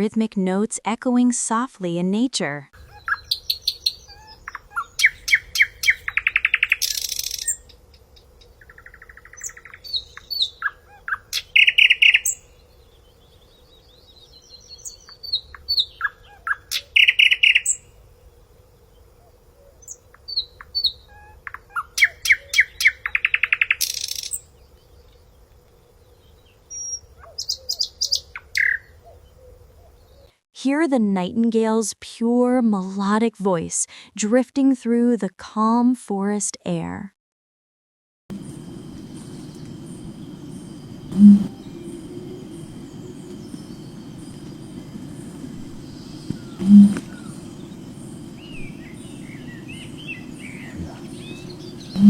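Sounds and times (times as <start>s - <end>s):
high-pitched bird chirps: 2.8s - 7.6s
bird calling rapid notes: 2.8s - 7.7s, 8.6s - 12.4s, 15.4s - 17.8s, 40.5s - 52.0s.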